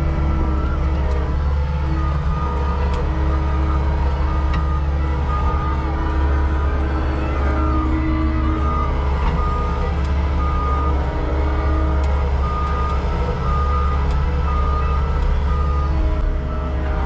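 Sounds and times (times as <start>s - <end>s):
heavy machine engine rumbling: 0.0s - 17.0s.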